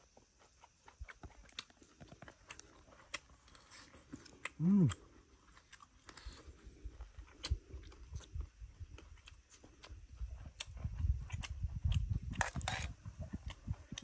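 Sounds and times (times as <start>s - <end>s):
man chewing: 0.0s - 14.0s
sharp mouth clicks: 4.4s - 5.0s.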